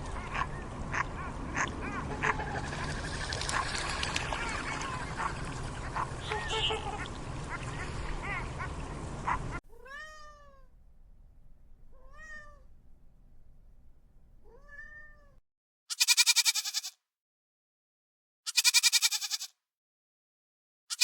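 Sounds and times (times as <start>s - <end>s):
ducks or geese calling: 0.0s - 9.6s
cat meowing: 9.7s - 10.7s, 11.9s - 12.7s, 14.4s - 15.4s
loud wavering bleat: 15.9s - 17.0s, 18.5s - 19.5s.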